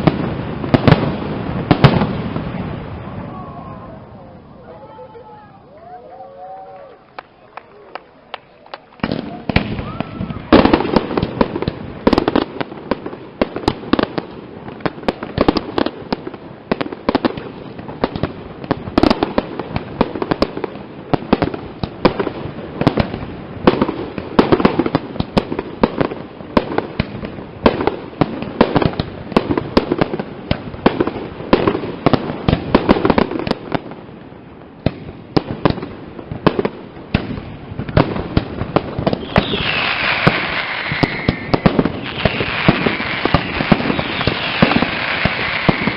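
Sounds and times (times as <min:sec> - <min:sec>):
fireworks bangs and cracks: 0:00.0 - 0:06.6, 0:07.2 - 0:45.9
falling firework whistles: 0:09.0 - 0:10.8, 0:39.0 - 0:45.9.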